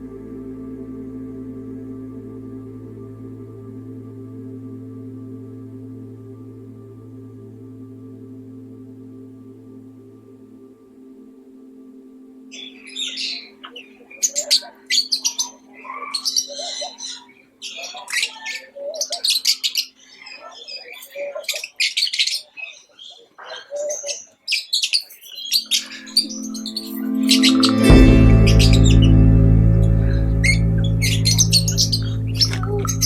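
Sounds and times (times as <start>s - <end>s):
low musical drone: 0.0s - 15.0s, 25.6s - 33.0s
tropical birds chirping and squawking: 12.5s - 33.0s.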